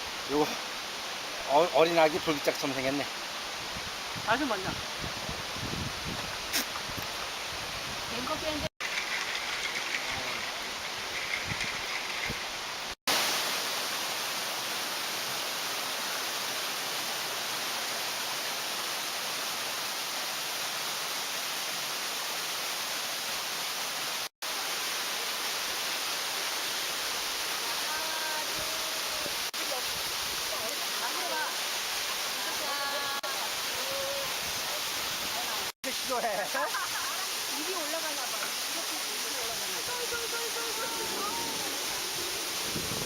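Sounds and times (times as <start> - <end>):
stream rushing over rocks: 0.0 - 43.0.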